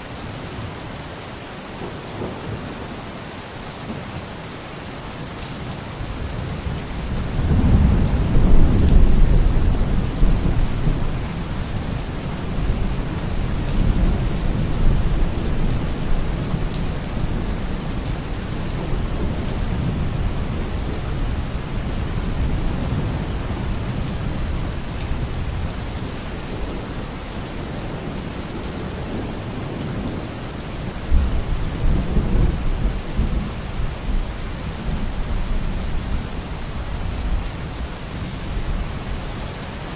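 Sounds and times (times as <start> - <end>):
heavy rain: 0.0 - 39.9
distant thunder rumbling: 7.2 - 21.1.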